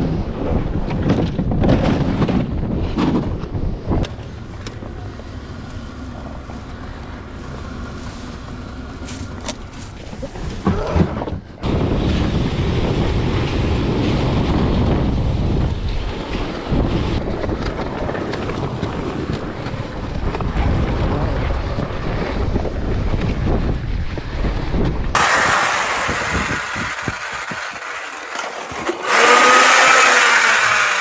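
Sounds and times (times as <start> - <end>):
strong wind buffeting microphone: 0.0 - 5.6, 9.6 - 27.9.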